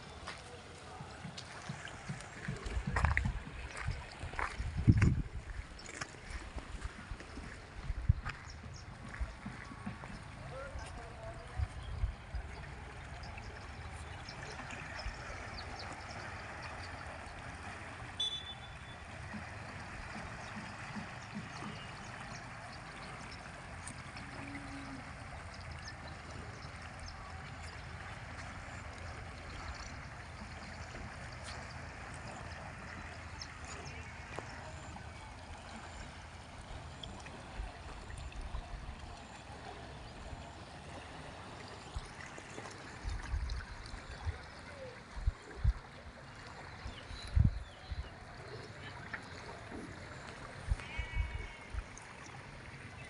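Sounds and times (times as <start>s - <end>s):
flowing river water: 0.0s - 53.0s.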